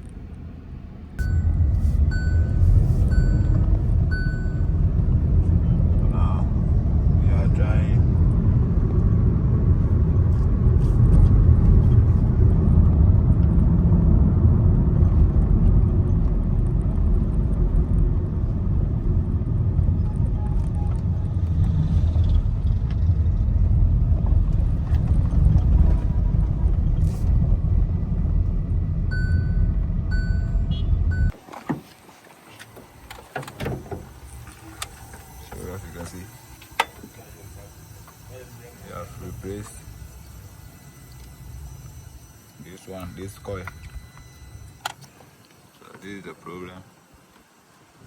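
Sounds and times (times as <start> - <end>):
car engine rumbling: 0.0 - 46.9
short beeps: 1.2 - 5.4, 29.1 - 31.4, 34.6 - 45.4.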